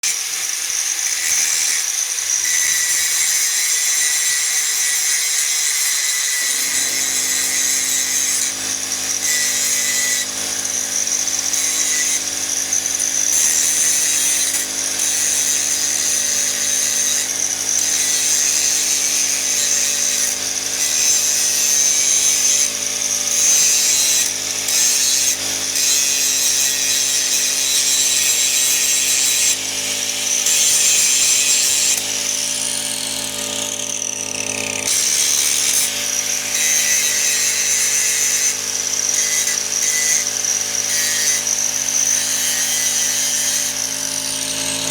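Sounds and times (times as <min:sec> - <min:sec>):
angle grinder grinding steel: 0:00.0 - 0:44.9.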